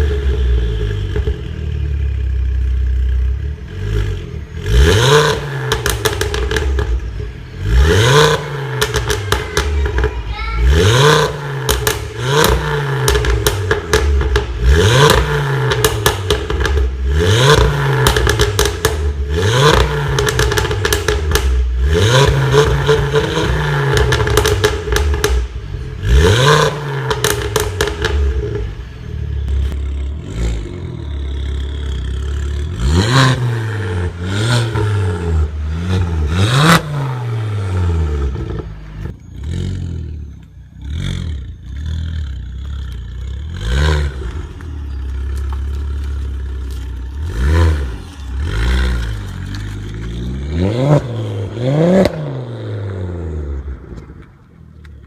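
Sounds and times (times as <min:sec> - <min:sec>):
car engine idling: 0:00.0 - 0:21.8, 0:22.4 - 0:55.0
car engine revving: 0:00.0 - 0:55.0
exhaust crackles and pops: 0:05.1 - 0:28.8, 0:40.2 - 0:55.0.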